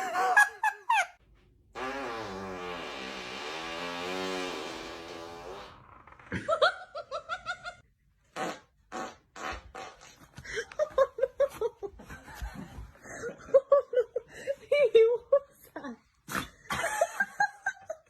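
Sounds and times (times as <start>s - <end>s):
person laughing: 0.0s - 1.2s, 6.3s - 7.8s, 10.4s - 18.0s.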